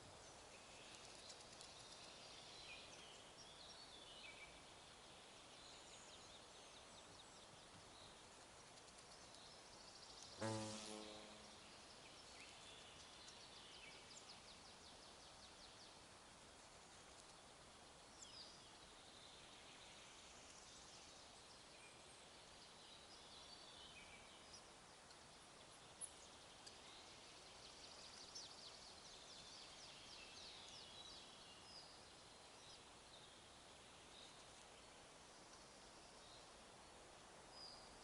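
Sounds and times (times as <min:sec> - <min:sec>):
small birds chirping: 0:00.0 - 0:16.0
soft hiss: 0:00.0 - 0:38.0.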